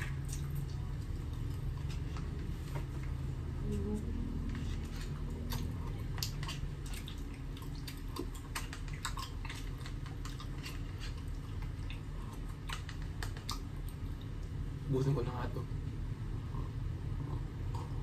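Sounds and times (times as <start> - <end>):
person chewing crispy food: 0.0 - 14.7
low steady hum: 0.0 - 18.0.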